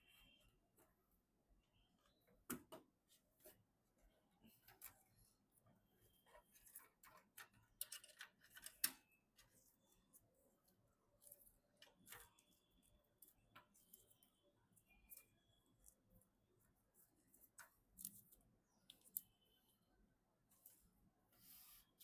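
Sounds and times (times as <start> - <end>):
small clicks and taps of parts: 6.7 - 9.5.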